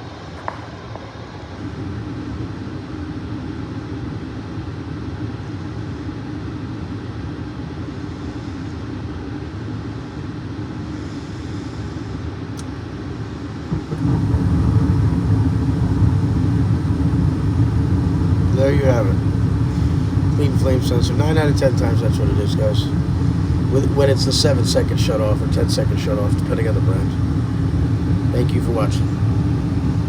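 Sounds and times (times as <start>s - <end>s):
burner flame rumble: 12.6s - 30.0s
furnace motor hum: 12.6s - 30.0s.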